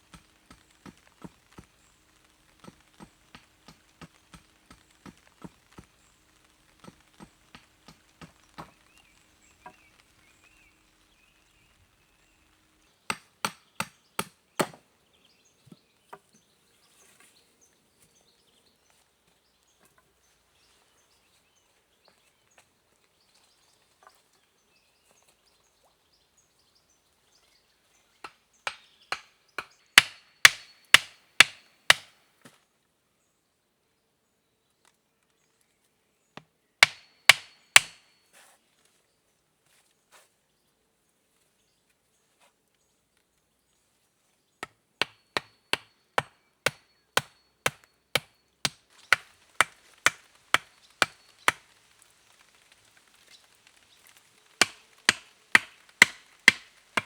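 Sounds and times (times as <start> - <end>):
axe chopping wood: 0.0 - 10.0, 13.1 - 14.8, 28.2 - 32.1, 36.8 - 38.0, 44.6 - 51.6, 54.6 - 57.0
light taps on wood: 0.0 - 10.1.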